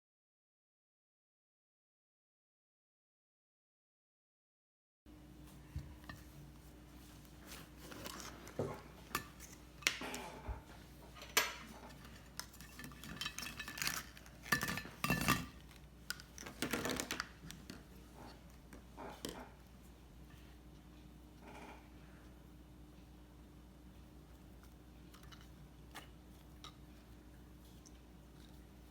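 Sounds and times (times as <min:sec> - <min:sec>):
containers and utensils clinking: 0:07.5 - 0:18.3.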